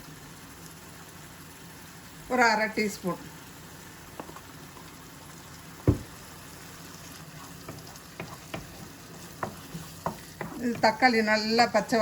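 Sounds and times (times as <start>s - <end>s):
food sizzling in oil: 0.0s - 12.0s
spoon knocking against pan: 5.9s - 6.2s, 7.6s - 11.2s.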